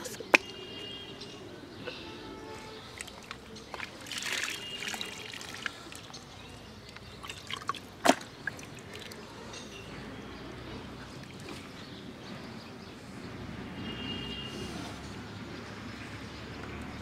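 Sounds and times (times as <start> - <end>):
small water splashes: 2.7 - 9.5
water sloshing and dripping: 2.7 - 9.5.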